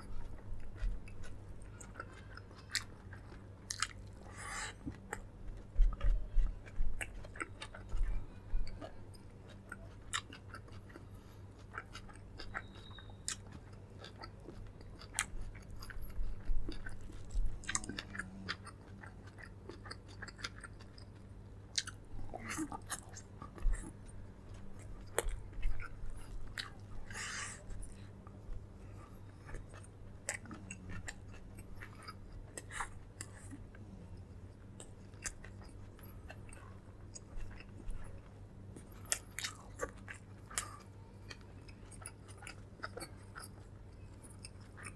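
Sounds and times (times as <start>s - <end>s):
steady low hum: 0.0s - 44.9s
person chewing and biting: 0.2s - 44.9s.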